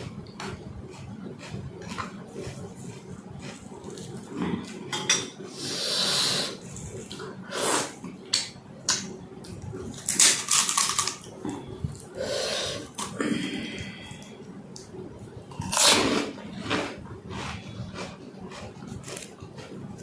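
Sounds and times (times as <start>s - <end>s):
crisp shells crunching: 10.0s - 11.3s.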